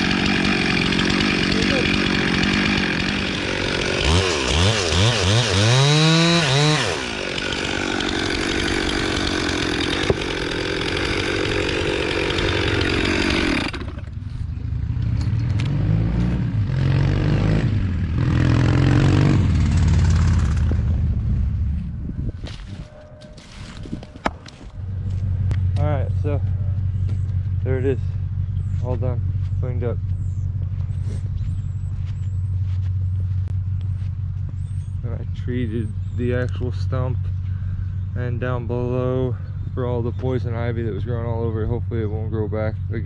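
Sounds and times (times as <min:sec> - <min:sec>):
chainsaw revving: 0:00.0 - 0:14.2, 0:15.2 - 0:20.8
lower-pitched engine: 0:00.0 - 0:43.0.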